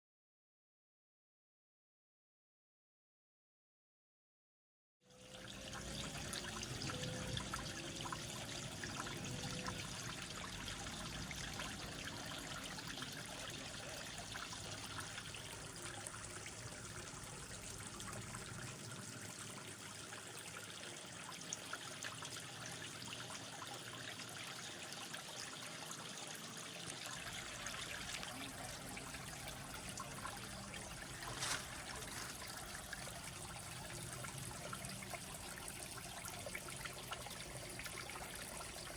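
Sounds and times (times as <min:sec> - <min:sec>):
creek water trickling: 0:05.1 - 0:38.9.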